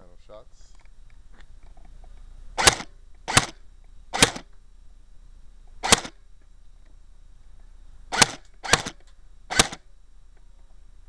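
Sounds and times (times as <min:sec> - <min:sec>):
airsoft rifle shots: 0:02.6 - 0:03.6, 0:04.2 - 0:04.5, 0:05.8 - 0:06.2, 0:08.1 - 0:09.8.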